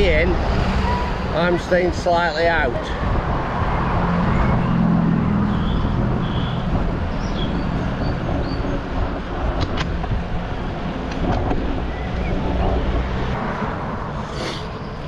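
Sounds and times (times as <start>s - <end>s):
road traffic rumble: 0.0s - 15.0s
vehicle engine hum: 0.0s - 15.0s.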